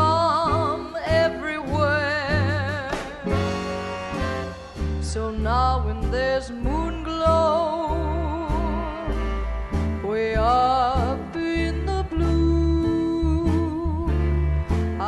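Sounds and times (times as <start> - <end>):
plucked upright bass: 0.0 - 15.0
horn melody with vibrato: 3.3 - 5.6, 8.7 - 13.1, 14.0 - 15.0.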